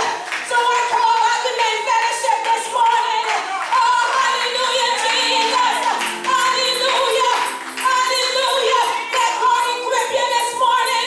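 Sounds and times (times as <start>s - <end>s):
person singing gospel: 0.0s - 11.0s
hand clapping: 0.2s - 9.7s
held accompaniment notes: 5.0s - 11.0s.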